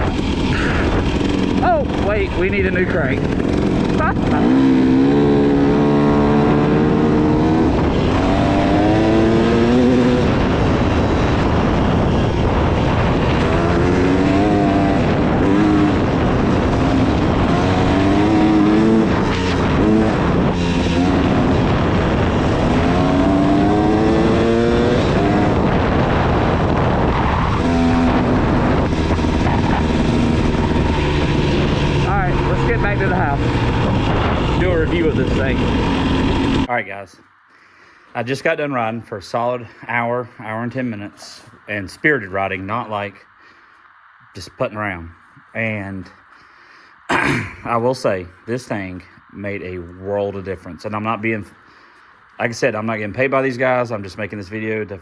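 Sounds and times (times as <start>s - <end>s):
dirt bike engine revving: 0.0s - 36.7s.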